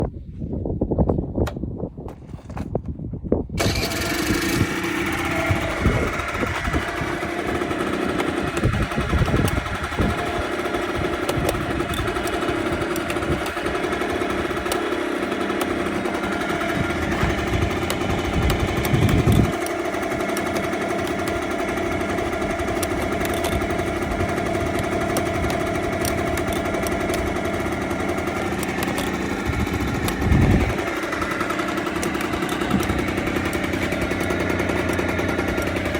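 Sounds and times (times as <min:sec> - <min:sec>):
scooter engine starting and idling: 0:02.2 - 0:35.9.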